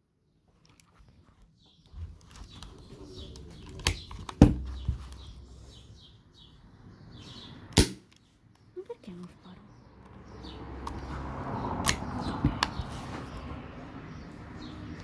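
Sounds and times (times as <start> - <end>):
birds chirping: 1.0 - 15.0
airsoft revolver firing: 7.8 - 8.1.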